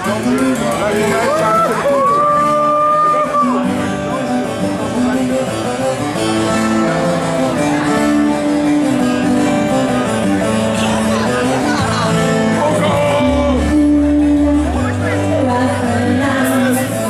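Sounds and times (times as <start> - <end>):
live band playing: 0.0 - 17.0
strummed acoustic guitar: 0.0 - 17.0.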